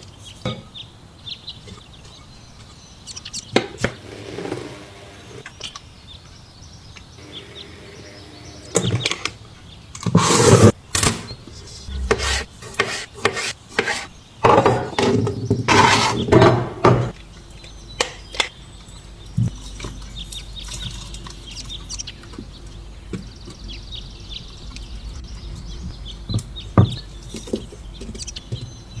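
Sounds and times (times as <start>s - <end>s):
faint low hum: 11.2s - 12.8s.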